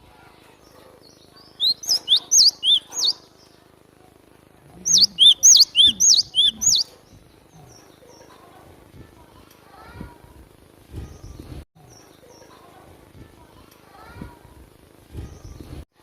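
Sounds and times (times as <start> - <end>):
bird singing whistled notes: 1.5 - 3.2, 4.9 - 6.9.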